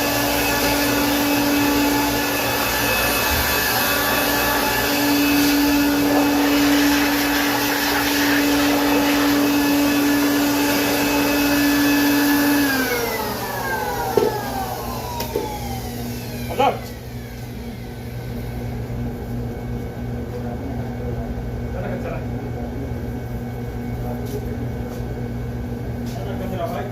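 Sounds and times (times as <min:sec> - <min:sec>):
electric air blower whining: 0:00.0 - 0:21.1.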